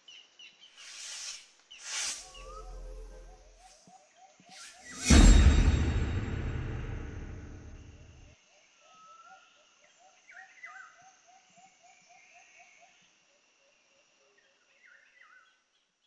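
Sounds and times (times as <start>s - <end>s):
birds whistling swooping notes: 0.8s - 3.8s.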